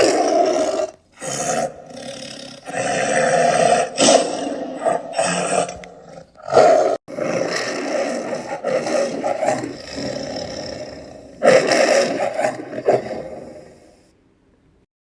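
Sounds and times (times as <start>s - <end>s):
big cat roaring: 0.0s - 14.0s.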